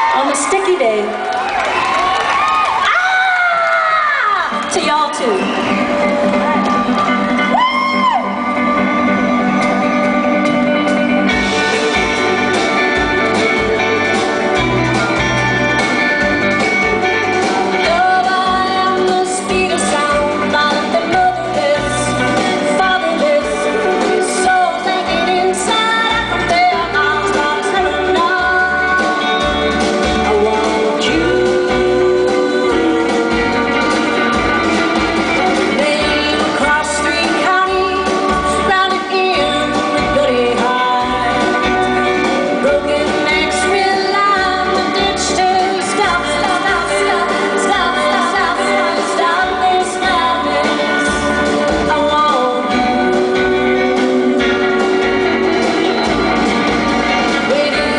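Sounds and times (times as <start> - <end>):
live rock band playing: 0.0 - 57.9
woman singing: 17.4 - 56.2, 57.1 - 57.9.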